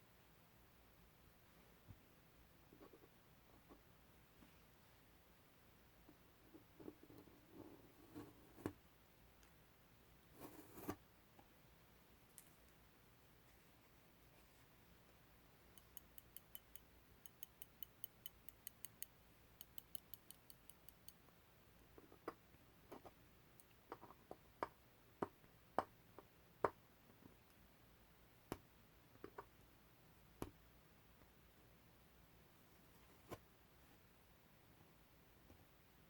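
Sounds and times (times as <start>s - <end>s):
irregular clicks and taps: 15.8s - 21.2s, 28.5s - 29.5s.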